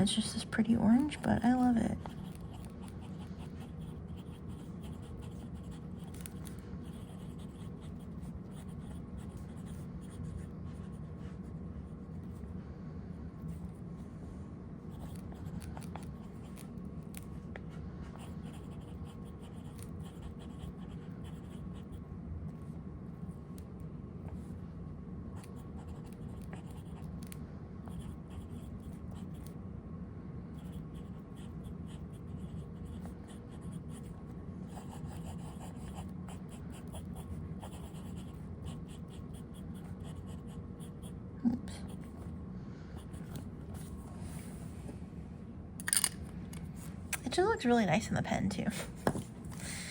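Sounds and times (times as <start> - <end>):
pen nib scratching paper: 0.9 - 12.5, 14.8 - 17.4, 18.1 - 22.0, 25.3 - 29.6, 30.6 - 41.2.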